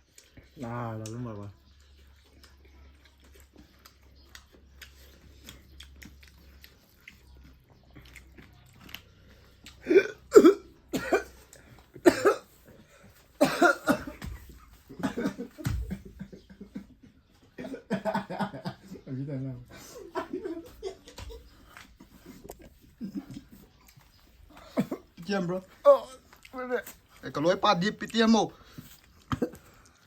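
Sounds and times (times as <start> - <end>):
person coughing: 9.8 - 11.4, 12.0 - 12.6, 13.4 - 14.3, 24.7 - 25.1.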